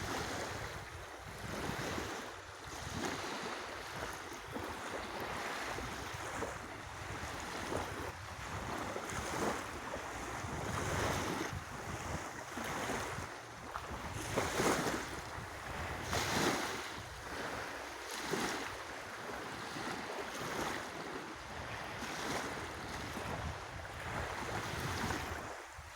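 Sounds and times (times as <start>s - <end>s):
lake waves washing in: 0.0s - 25.9s
wind buffeting microphone: 5.7s - 17.7s, 21.6s - 25.9s.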